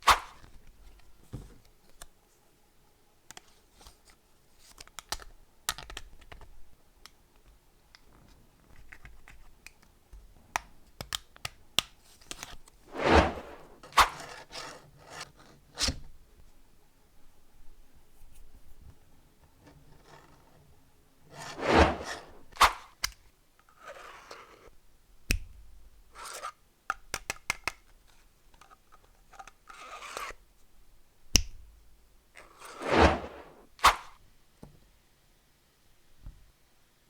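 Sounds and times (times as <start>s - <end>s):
plastic parts clicking and tapping: 4.7s - 7.6s, 8.7s - 12.5s, 26.9s - 30.3s
plastic scrape: 12.9s - 15.6s, 21.3s - 22.8s, 32.4s - 34.0s.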